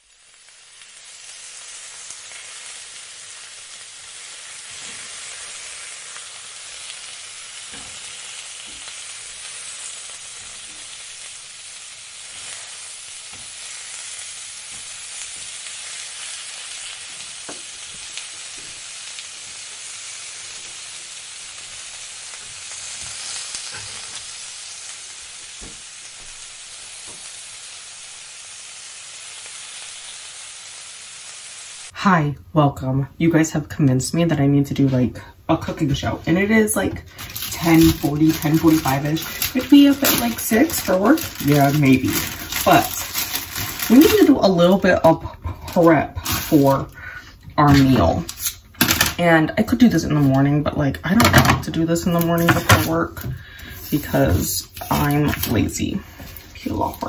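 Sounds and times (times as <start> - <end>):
food sizzling in a pan: 0.0 - 32.0, 34.5 - 57.0.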